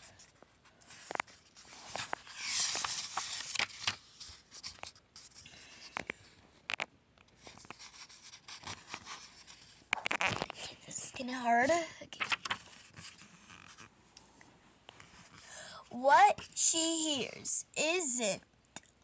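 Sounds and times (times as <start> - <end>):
paper rustling: 0.8 - 5.4, 12.2 - 13.9.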